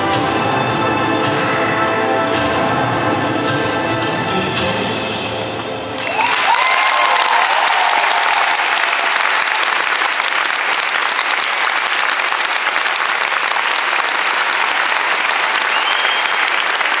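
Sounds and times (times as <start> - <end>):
large audience applauding: 5.9 - 17.0.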